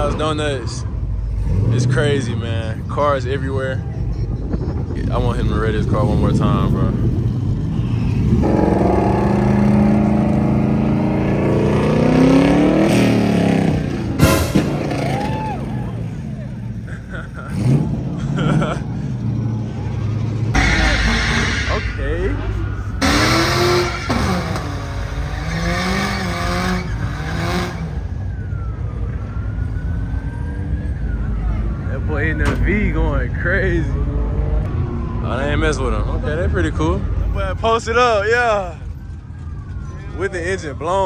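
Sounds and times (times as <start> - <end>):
car engine revving hard: 1.3 - 2.2, 5.0 - 28.1
tyres screeching: 5.7 - 28.0.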